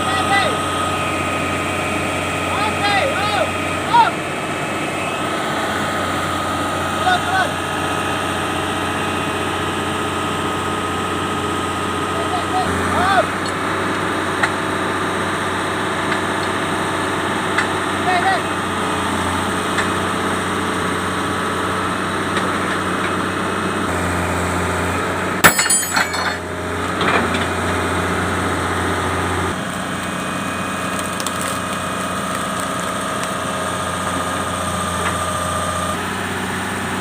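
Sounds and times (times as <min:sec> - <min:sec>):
diesel engine running: 0:00.0 - 0:37.0
metal clanks: 0:25.4 - 0:26.4.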